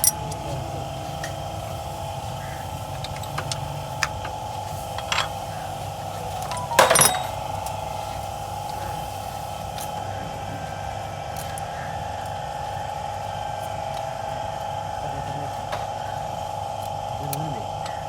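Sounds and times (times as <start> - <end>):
workshop hum: 0.0 - 18.0
hand tools clicking: 3.0 - 4.4, 5.0 - 5.6, 6.3 - 7.8
metal clattering on metal: 5.0 - 5.6, 6.3 - 7.8.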